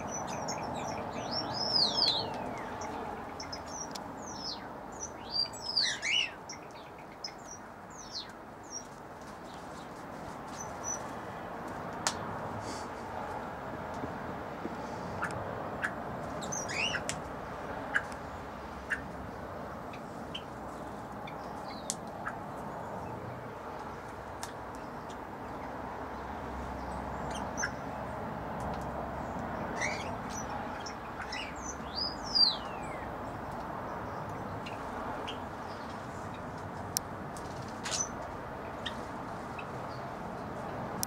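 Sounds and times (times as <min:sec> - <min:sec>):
birds chirping and calling: 0:00.0 - 0:09.9, 0:14.8 - 0:17.2, 0:17.8 - 0:23.2, 0:26.8 - 0:28.0, 0:29.2 - 0:36.6, 0:37.4 - 0:40.2
steady background noise: 0:00.0 - 0:41.0.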